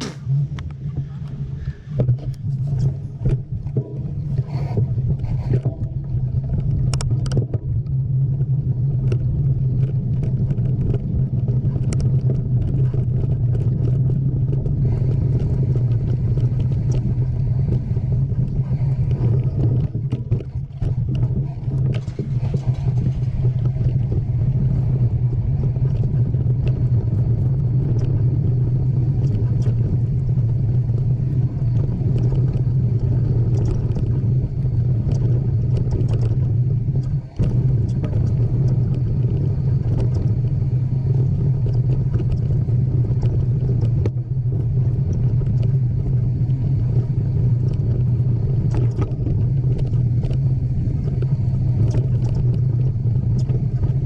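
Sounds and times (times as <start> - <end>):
wind on microphone: 0.0 - 54.0
bike rattling clicks: 29.2 - 40.6.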